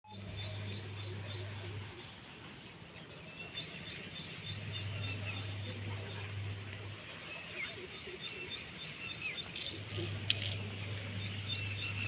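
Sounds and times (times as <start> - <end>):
steady low hum: 0.1 - 12.0
small bird chirping: 7.4 - 12.0.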